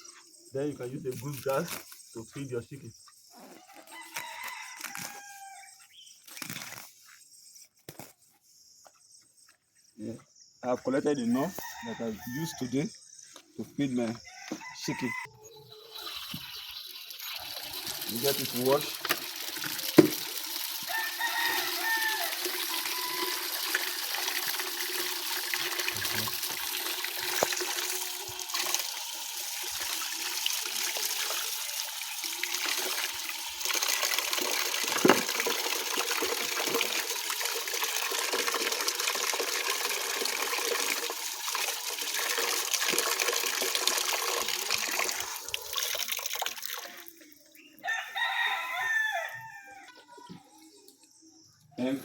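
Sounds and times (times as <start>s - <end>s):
water running and splashing: 15.6s - 47.4s
chickens calling: 47.5s - 50.9s.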